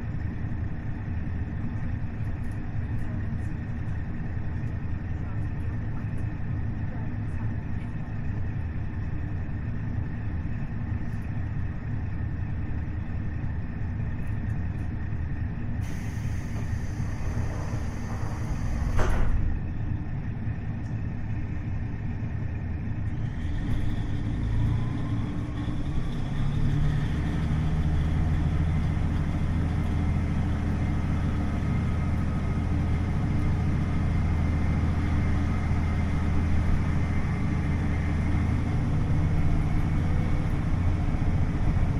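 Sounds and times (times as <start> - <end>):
diesel railcar engine rumble: 0.0 - 41.9
faint engine whine: 0.0 - 41.9
air hissing: 15.8 - 19.0.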